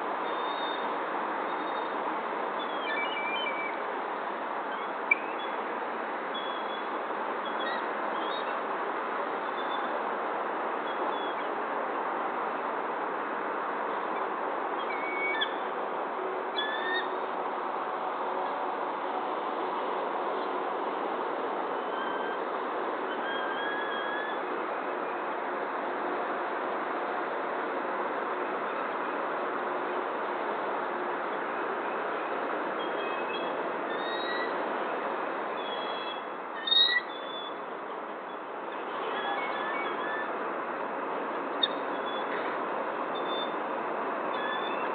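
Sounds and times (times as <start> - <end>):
steady background hiss: 0.0 - 44.9
steady background hum: 0.0 - 44.9
high whistled bird calls: 2.6 - 3.8, 4.7 - 5.6, 14.8 - 15.7, 16.6 - 17.2, 21.8 - 22.4, 23.1 - 24.4, 32.8 - 34.6, 35.6 - 37.6
high-pitched bird call: 35.6 - 37.6.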